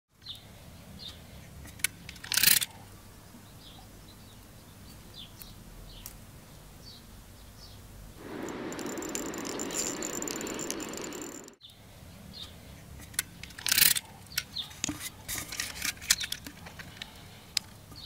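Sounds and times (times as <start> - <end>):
low steady hum: 8.2 - 11.6
steady hiss: 8.2 - 11.6
small birds chirping: 8.2 - 11.7.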